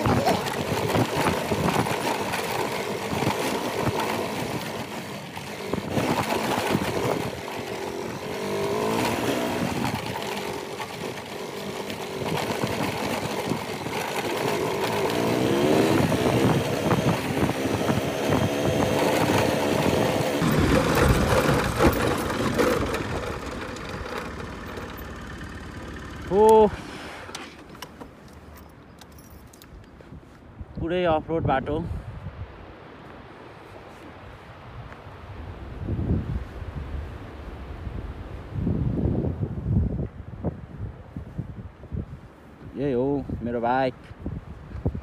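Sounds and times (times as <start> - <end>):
motorcycle engine revving: 0.0 - 29.3.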